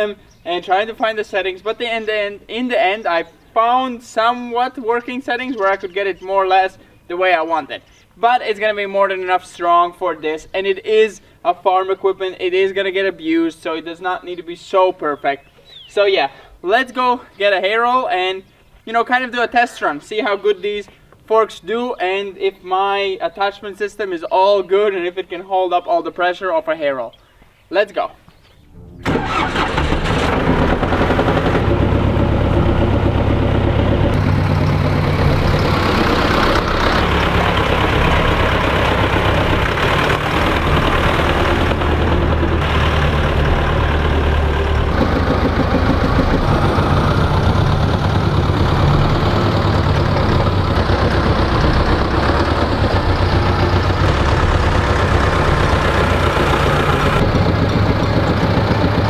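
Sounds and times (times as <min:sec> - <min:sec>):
tractor engine running: 0:28.7 - 0:59.0.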